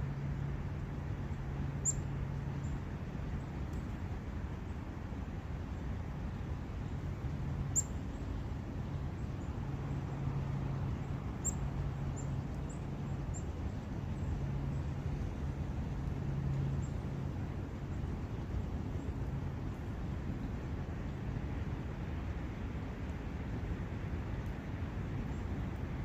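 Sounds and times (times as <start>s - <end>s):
constant low hum: 0.0s - 26.0s
small birds chirping: 7.7s - 8.3s, 10.9s - 14.9s.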